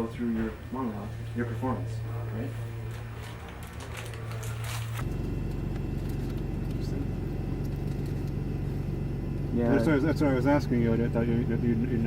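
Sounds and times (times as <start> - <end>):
vehicle engine rumbling: 0.0 - 12.0
voices: 9.4 - 12.0.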